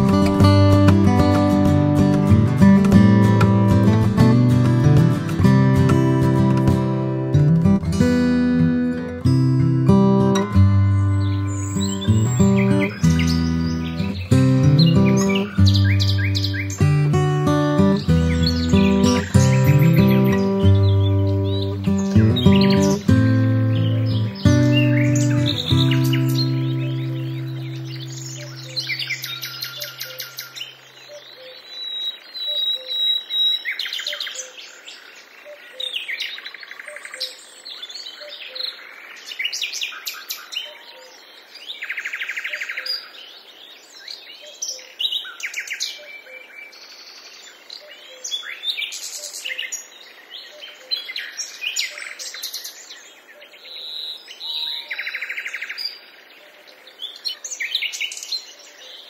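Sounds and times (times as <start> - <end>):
birds chirping and trilling: 0.0 - 59.0
buzzy bird calls: 10.5 - 33.0.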